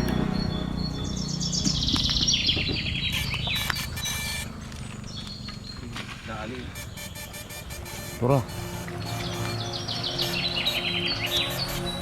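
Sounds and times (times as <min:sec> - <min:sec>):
steady low rumble: 0:00.0 - 0:05.6
bird chirps sliding down: 0:01.3 - 0:04.6, 0:06.7 - 0:12.0.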